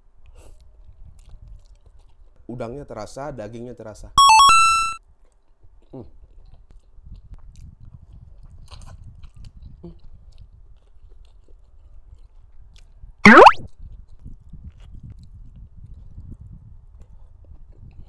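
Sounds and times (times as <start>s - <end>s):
soft chewing: 0.2s - 2.6s, 5.2s - 13.0s, 14.0s - 18.0s
rising sound effect: 13.3s - 13.6s.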